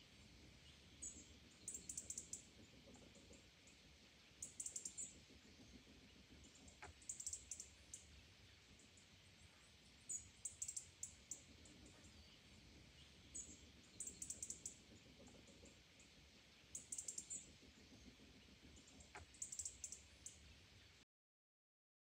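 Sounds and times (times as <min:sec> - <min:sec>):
low hiss: 0:00.0 - 0:21.0
faint small bird chirps: 0:00.6 - 0:21.0.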